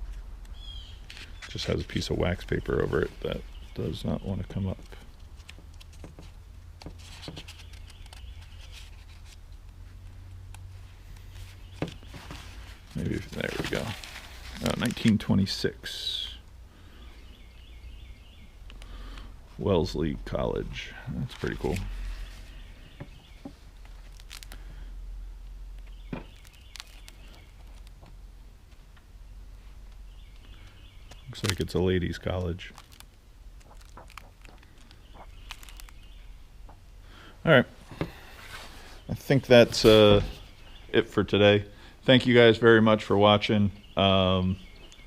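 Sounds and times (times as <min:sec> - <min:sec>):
low steady hum: 0:00.0 - 0:45.0
paper rustling and crinkling: 0:04.8 - 0:09.6, 0:11.1 - 0:15.5, 0:21.2 - 0:24.6, 0:25.8 - 0:28.0, 0:31.2 - 0:36.1.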